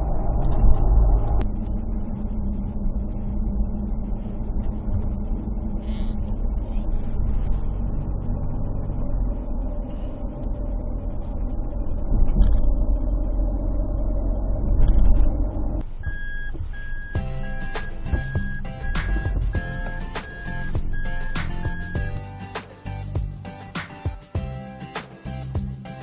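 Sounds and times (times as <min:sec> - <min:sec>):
vehicle engine and motion rumble: 0:00.0 - 0:26.0
music: 0:17.1 - 0:26.0.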